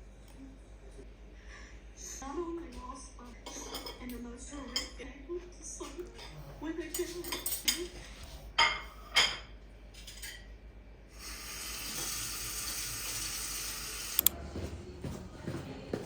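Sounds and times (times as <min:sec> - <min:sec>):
dishes clinking: 0:03.4 - 0:05.0, 0:06.2 - 0:10.5
tap water running into sink: 0:11.2 - 0:14.2.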